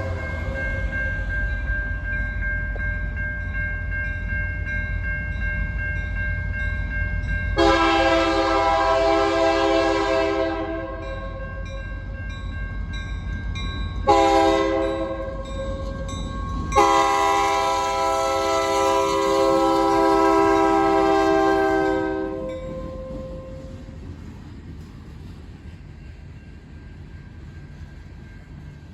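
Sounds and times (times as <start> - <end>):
locomotive air horn blasts: 7.6 - 11.3, 14.1 - 15.5, 16.8 - 23.6.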